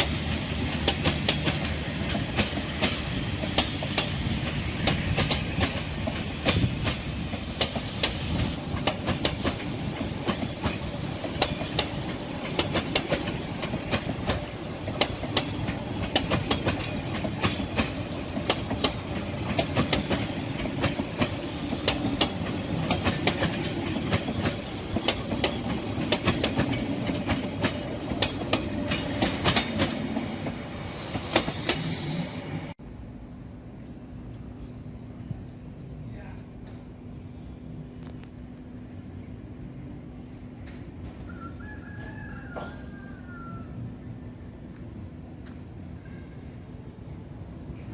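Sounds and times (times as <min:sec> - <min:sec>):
train wheels clacking over rail joints: 0:00.0 - 0:32.0
train rumble: 0:00.0 - 0:47.9.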